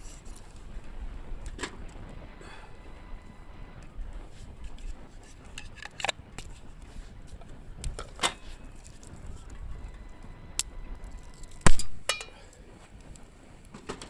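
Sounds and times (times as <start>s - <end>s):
metallic ring: 11.2s - 12.4s.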